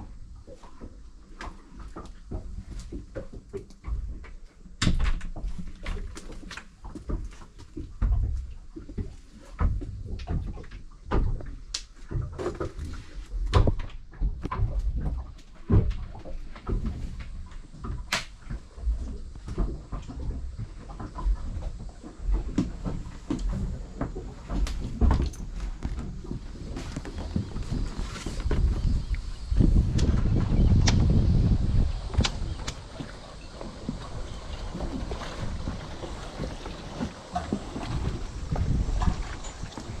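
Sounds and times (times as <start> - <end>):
knocks and clunks on boat deck: 0.0 - 40.0
low rumble: 18.6 - 40.0.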